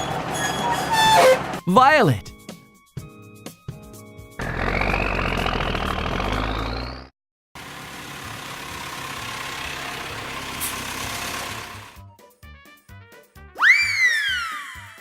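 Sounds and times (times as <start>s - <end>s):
vehicle engine revving with whine: 4.4s - 12.0s.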